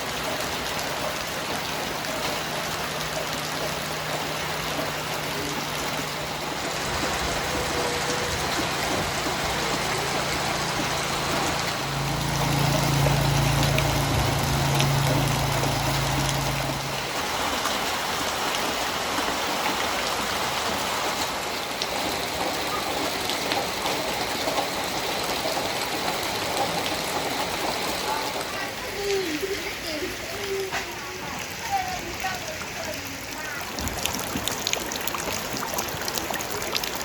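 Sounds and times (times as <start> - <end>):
vehicle engine idling: 0.0 - 17.6
heavy rain hissing: 0.0 - 37.0
rushing floodwater: 0.0 - 37.0.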